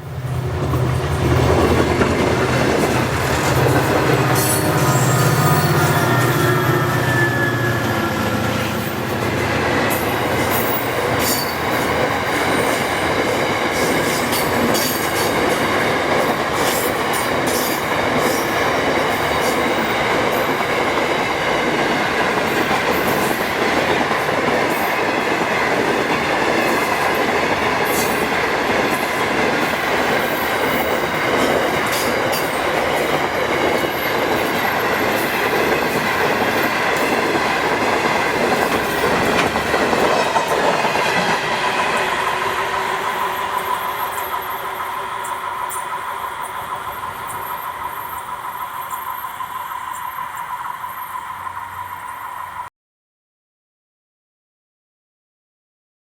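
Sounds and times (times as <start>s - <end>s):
freight wagons rumbling on rails: 0.0s - 52.1s
wheels clunking over rail joints: 0.4s - 5.8s, 27.7s - 42.1s.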